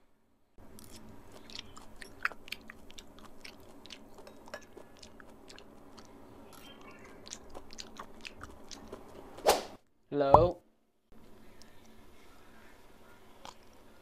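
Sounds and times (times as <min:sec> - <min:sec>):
person chewing with wet mouth clicks: 0:00.7 - 0:09.3.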